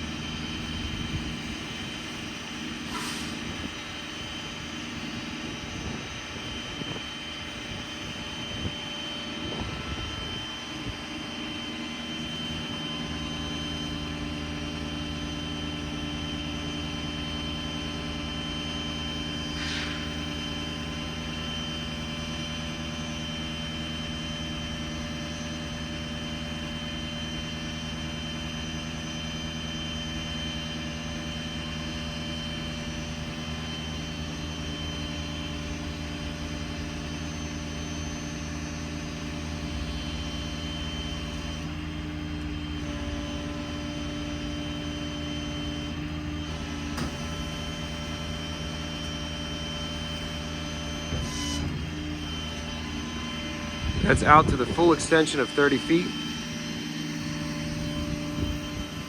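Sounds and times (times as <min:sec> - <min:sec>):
hydraulic pump whine: 0:00.0 - 0:59.0
diesel engine running: 0:35.5 - 0:59.0.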